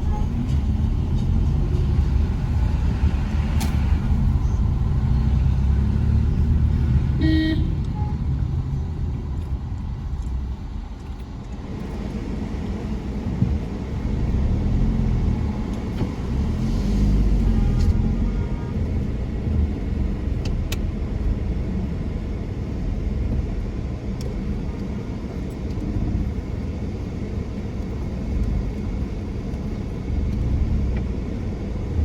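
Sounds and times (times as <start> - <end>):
vehicle engine and road noise: 0.0 - 32.0
short horn toot: 7.2 - 8.1.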